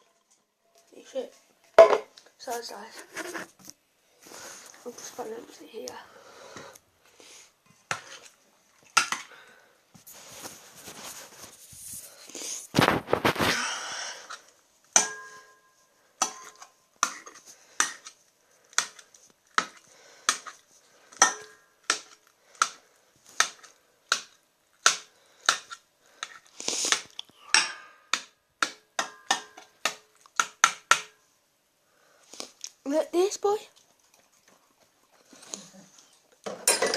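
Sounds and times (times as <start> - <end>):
food clinking in bowl: 36.5 - 36.9.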